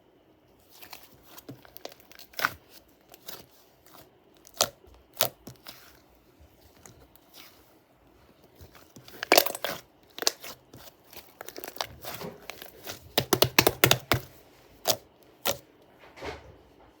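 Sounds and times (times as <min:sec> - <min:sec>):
slime crackling and popping: 0:00.7 - 0:05.9, 0:08.6 - 0:15.6.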